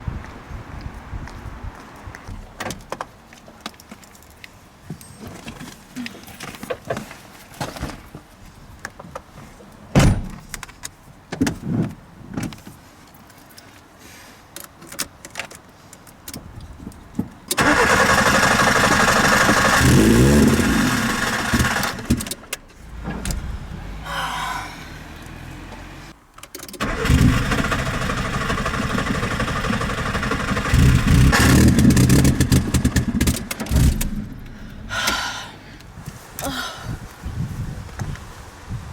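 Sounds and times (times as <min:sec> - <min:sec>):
car engine starting and revving: 0:17.6 - 0:26.2, 0:26.8 - 0:35.3.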